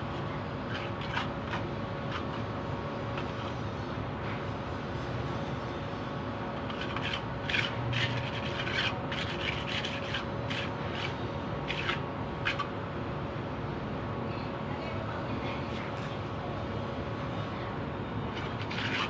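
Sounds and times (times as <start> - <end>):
steady hum: 0.0 - 19.0
scraping strokes by hand: 0.1 - 3.8, 6.6 - 12.7, 18.3 - 19.0.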